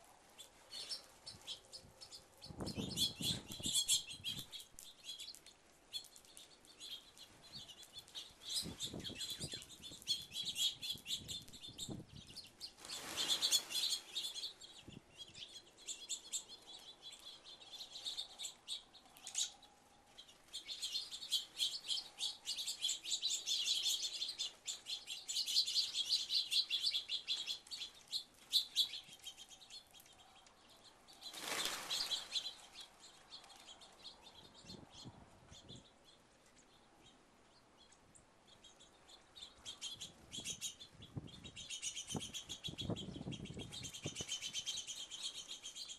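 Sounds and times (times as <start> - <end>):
songbirds chirping and twittering: 0.0 - 45.9
rush of many wings: 12.8 - 14.4, 31.2 - 32.8.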